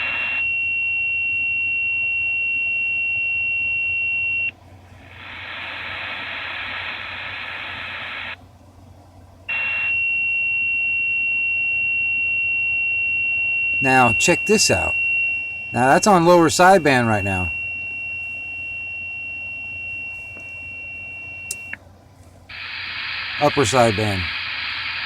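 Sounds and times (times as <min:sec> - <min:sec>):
radio static hiss: 0:05.0 - 0:08.4, 0:13.8 - 0:20.6, 0:22.5 - 0:25.0
high-pitched radio tone: 0:13.8 - 0:17.8, 0:22.5 - 0:24.4.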